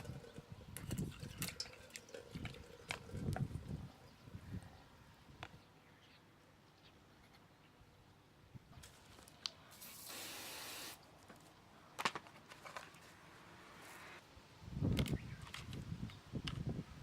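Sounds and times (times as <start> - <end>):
aerosol spray hissing: 9.8 - 11.0.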